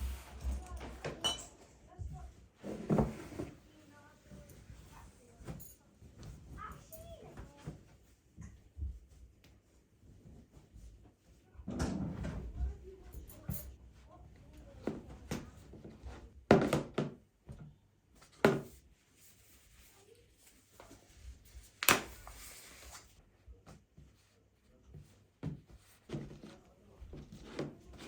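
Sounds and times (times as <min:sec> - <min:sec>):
objects knocking and thudding: 0:00.0 - 0:03.6, 0:14.8 - 0:17.7, 0:18.3 - 0:18.8
soft rustling: 0:18.8 - 0:28.0.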